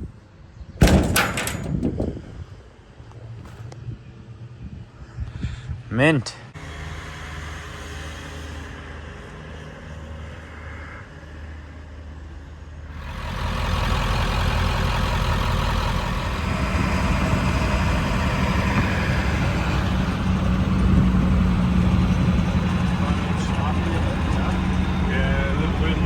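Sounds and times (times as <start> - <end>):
truck engine running: 0.8 - 2.1, 12.9 - 26.0.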